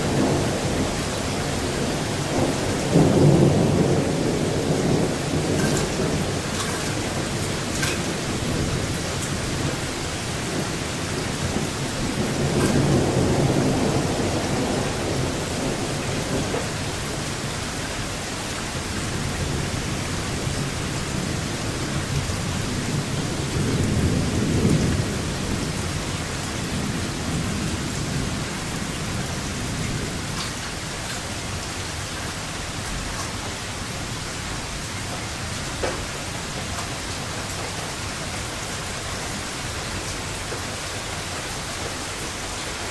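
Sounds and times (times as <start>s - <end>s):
low thunder rolls: 0.0s - 17.4s, 19.0s - 31.2s
steady rain: 0.0s - 42.9s.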